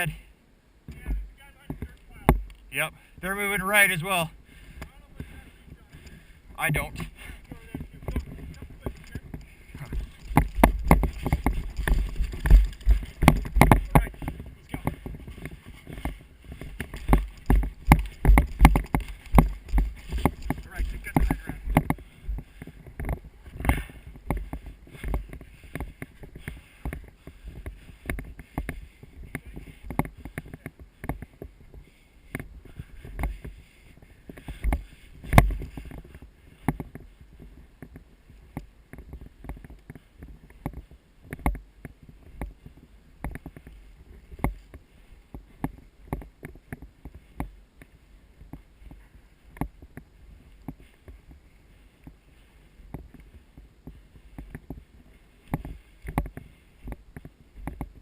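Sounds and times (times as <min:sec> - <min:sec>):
rustling: 0:01.0 - 0:58.0
knocks close to microphone: 0:07.8 - 0:15.0, 0:16.8 - 0:22.4.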